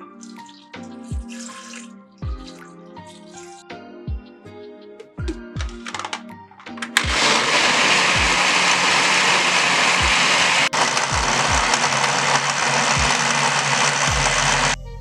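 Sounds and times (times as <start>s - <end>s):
electric blender running: 7.0s - 14.8s.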